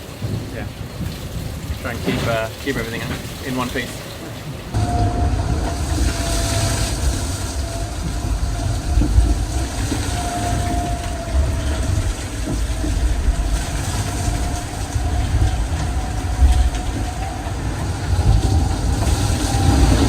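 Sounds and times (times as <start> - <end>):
low rumble of hull and water: 0.0 - 20.0
thin steady whine: 4.8 - 20.0.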